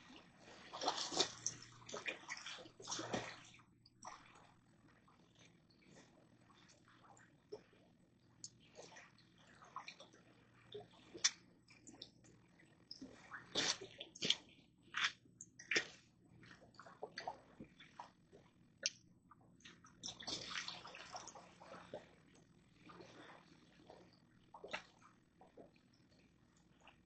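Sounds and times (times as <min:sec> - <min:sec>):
water splashing and dripping: 0:12.9 - 0:14.4, 0:20.0 - 0:21.4.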